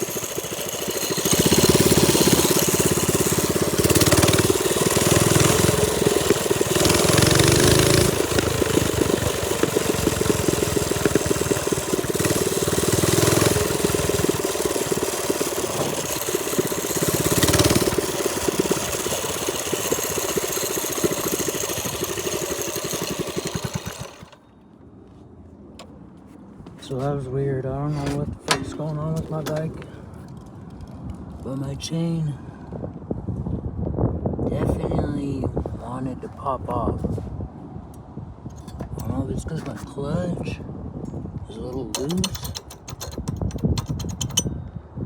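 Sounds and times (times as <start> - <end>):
minibike engine revving: 0.0 - 24.4, 41.9 - 44.5.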